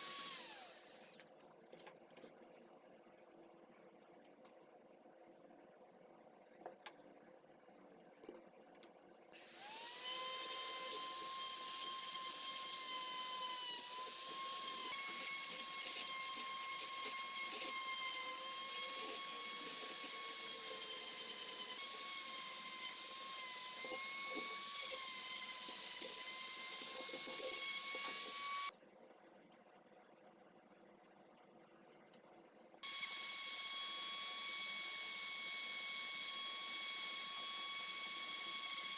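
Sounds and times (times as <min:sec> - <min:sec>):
power tool whining: 0:00.0 - 0:01.2, 0:09.4 - 0:28.7, 0:32.8 - 0:38.9.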